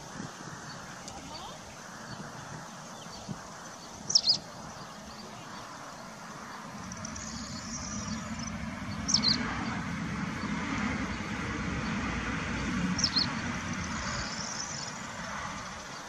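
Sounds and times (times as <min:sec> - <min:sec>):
bird chirping: 0:00.0 - 0:12.0, 0:12.6 - 0:16.0
bird twitter: 0:00.6 - 0:12.0, 0:12.8 - 0:16.0
low rumble: 0:06.4 - 0:15.8.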